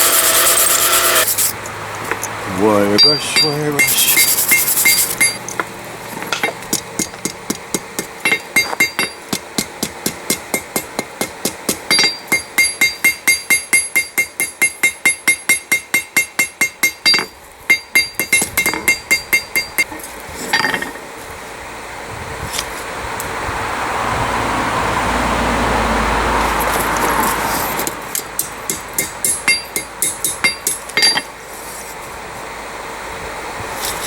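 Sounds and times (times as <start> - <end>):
hammer striking steel on anvil: 3.0 - 21.0, 28.1 - 31.4.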